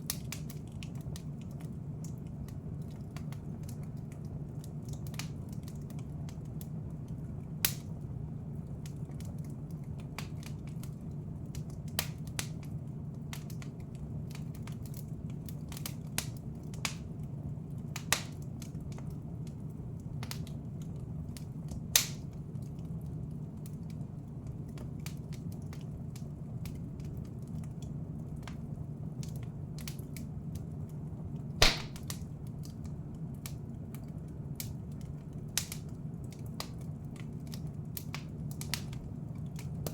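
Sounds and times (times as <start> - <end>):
wood fire crackling: 0.0 - 39.9
sharp fire pops: 31.6 - 32.3.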